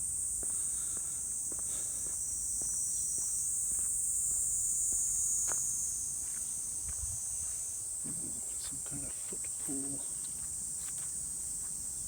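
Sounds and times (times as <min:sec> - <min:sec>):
insect chorus droning: 0:00.0 - 0:12.0
light footsteps walking: 0:09.6 - 0:11.8.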